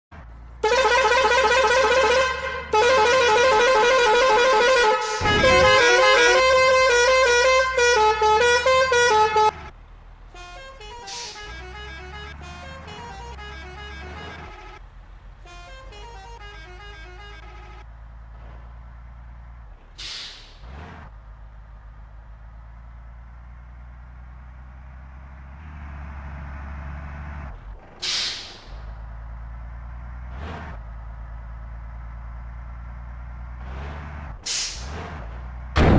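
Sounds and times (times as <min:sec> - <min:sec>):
truck diesel engine rumbling: 0:00.1 - 0:35.9
truck musical horn playing tune: 0:00.6 - 0:09.7, 0:10.3 - 0:17.8
air brake hiss: 0:20.0 - 0:20.6, 0:28.0 - 0:28.9, 0:34.4 - 0:34.9.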